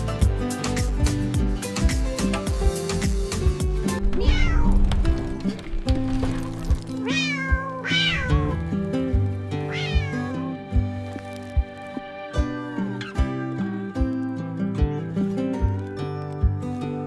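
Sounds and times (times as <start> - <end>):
background music with drum beat: 0.0 - 4.4, 7.1 - 10.9
cat meowing: 3.9 - 4.9, 7.0 - 8.6, 9.6 - 10.5.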